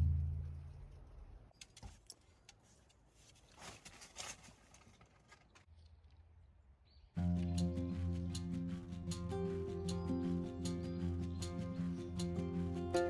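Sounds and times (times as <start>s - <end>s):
soft rustling: 1.9s - 5.7s.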